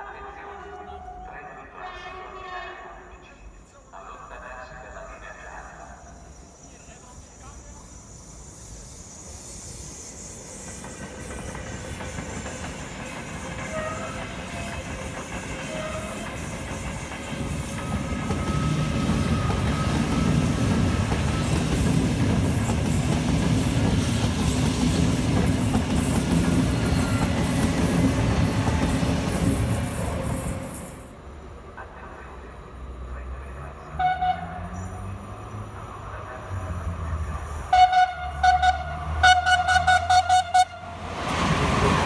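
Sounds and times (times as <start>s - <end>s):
train wheels clattering on track: 9.4s - 31.0s.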